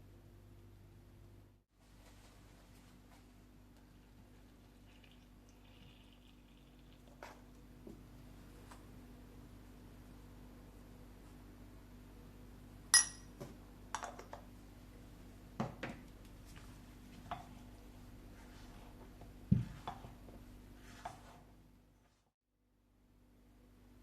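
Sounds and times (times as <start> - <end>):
ringing clink of glass: 13.0 - 13.3.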